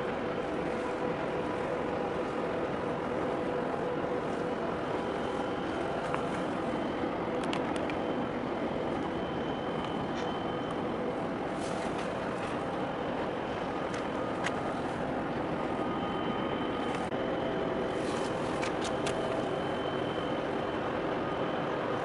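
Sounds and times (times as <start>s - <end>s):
engine noise: 0.0s - 22.0s
traffic noise: 0.0s - 22.0s.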